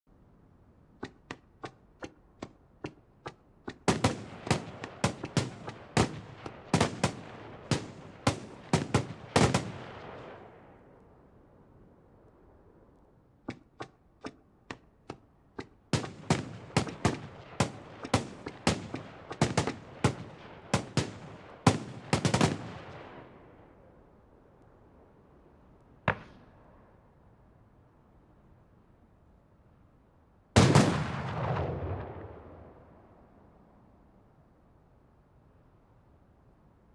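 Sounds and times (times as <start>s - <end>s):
fireworks bangs and pops: 3.7s - 10.0s, 16.0s - 22.9s.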